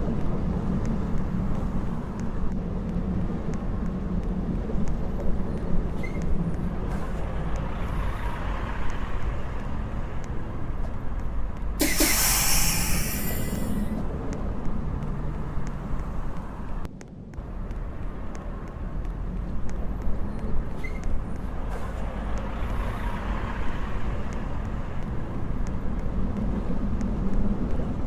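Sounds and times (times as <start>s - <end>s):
subway train rumbling: 0.0s - 16.8s, 17.4s - 28.0s
loud hissing air: 11.8s - 13.9s.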